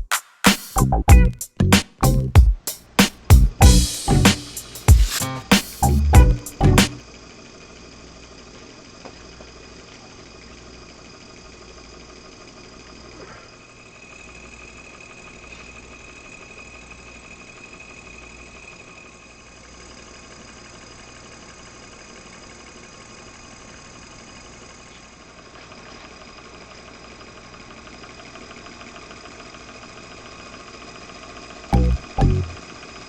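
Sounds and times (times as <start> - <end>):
thin high tone: 3.6 - 7.0, 31.7 - 32.6
model steam engine running: 7.0 - 31.7, 32.6 - 33.0.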